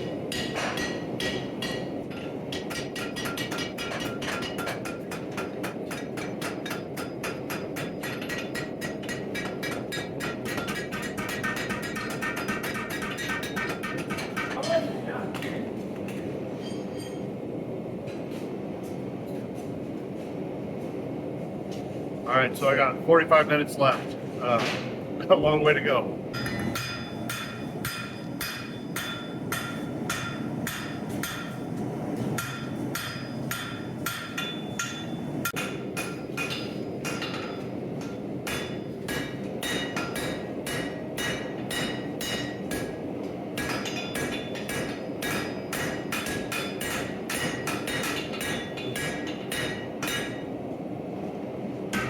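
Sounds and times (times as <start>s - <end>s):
hammer striking steel on anvil: 0.0s - 14.8s, 26.4s - 31.7s, 32.4s - 43.0s, 43.6s - 50.5s.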